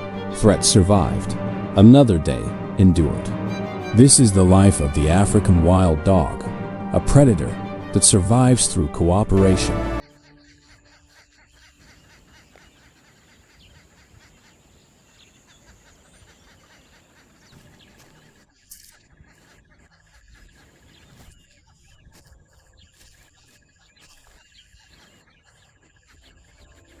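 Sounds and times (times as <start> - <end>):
lower pulsing trill: 0.0 - 10.0.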